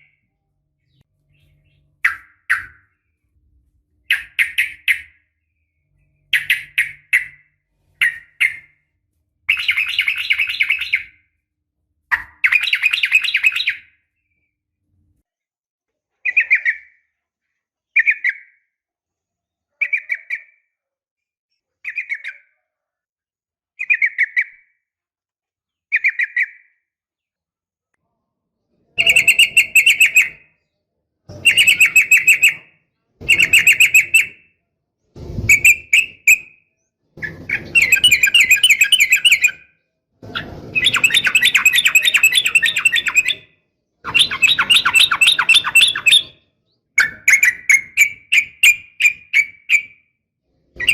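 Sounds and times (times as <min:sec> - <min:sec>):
rapid chattering birdsong: 0:09.5 - 0:11.1, 0:29.0 - 0:30.6, 0:37.2 - 0:39.7, 0:40.3 - 0:46.4
bird calling: 0:37.2 - 0:39.6, 0:40.8 - 0:43.4, 0:44.1 - 0:46.3.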